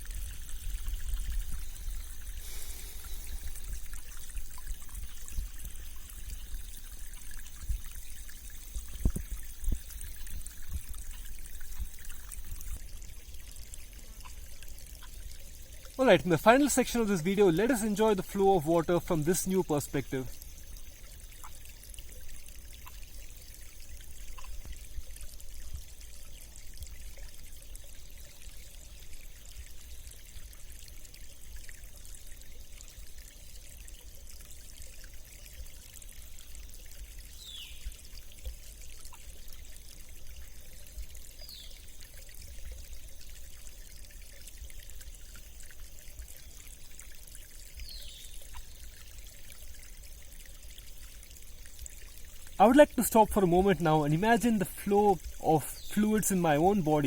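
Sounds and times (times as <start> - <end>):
stream bubbling and trickling: 0.0 - 57.0.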